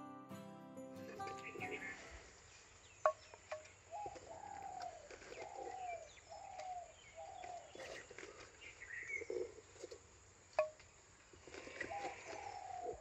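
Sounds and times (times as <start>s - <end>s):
bird cooing: 1.2s - 2.3s, 3.9s - 9.5s, 11.5s - 13.0s.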